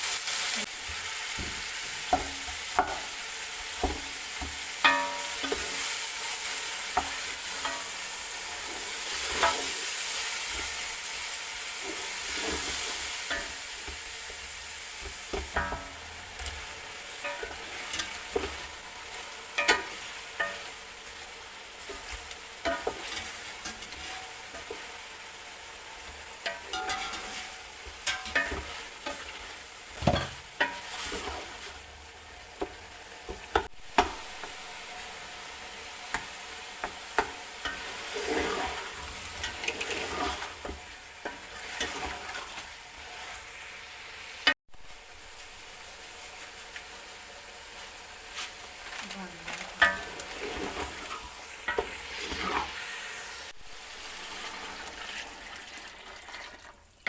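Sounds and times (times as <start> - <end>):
food sizzling in a hot pan: 0.0 - 57.0
spoon scraping and knocking pot: 3.8 - 5.9, 15.0 - 20.7, 21.8 - 24.8, 26.4 - 31.5.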